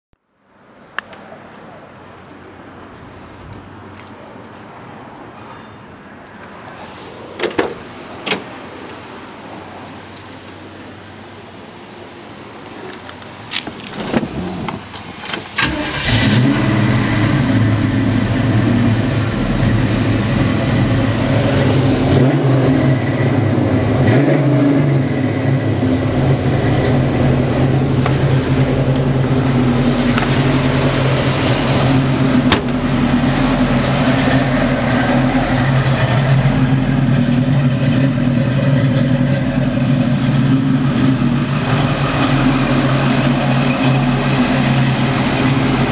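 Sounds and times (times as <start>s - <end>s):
car engine idling: 5.9s - 45.9s
engine starter cranking: 14.0s - 16.6s.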